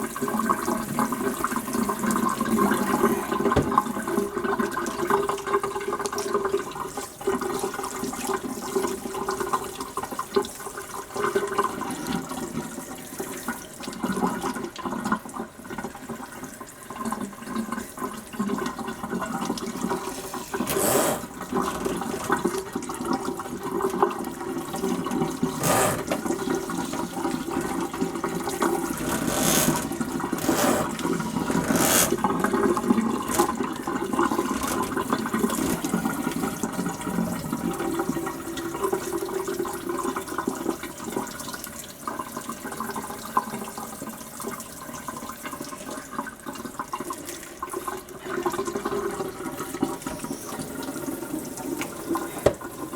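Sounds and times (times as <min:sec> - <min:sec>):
water running: 0:18.9 - 0:39.1.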